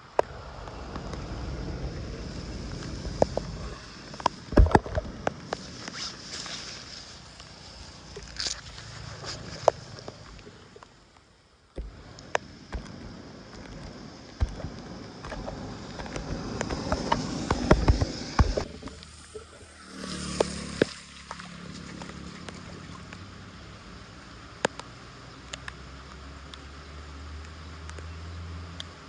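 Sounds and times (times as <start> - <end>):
water gurgling and sloshing: 0.0 - 24.9
sharp knocks and clicks: 4.2 - 5.5, 11.8 - 19.0.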